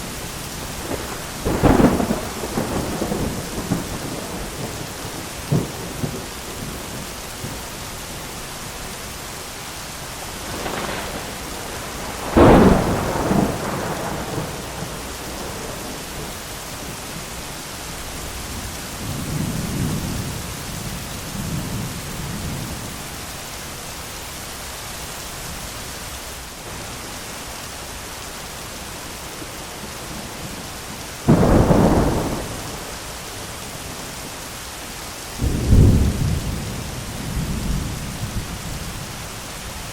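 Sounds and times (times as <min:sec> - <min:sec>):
rain hiss: 0:00.0 - 0:39.9
loud thunderclaps: 0:00.8 - 0:07.6, 0:10.4 - 0:16.3, 0:31.2 - 0:33.0, 0:35.4 - 0:38.9
rolling thunder: 0:00.8 - 0:07.6, 0:10.3 - 0:17.1, 0:29.4 - 0:34.0, 0:35.4 - 0:39.2.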